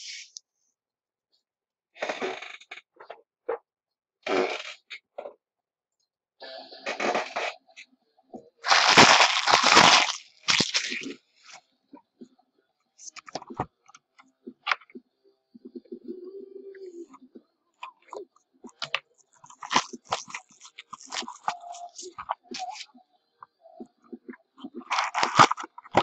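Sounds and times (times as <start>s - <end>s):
wrappers crinkling and tearing: 8.6s - 11.1s, 19.4s - 22.8s, 24.8s - 26.0s.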